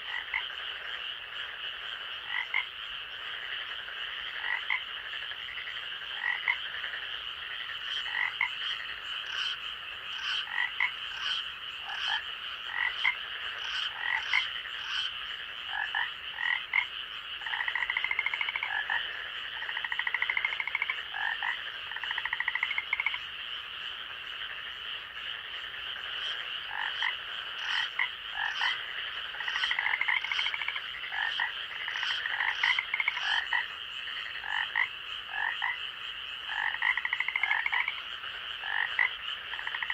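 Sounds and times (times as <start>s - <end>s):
frog pulsed trills: 0.0s - 39.9s
frogs calling: 0.0s - 39.9s.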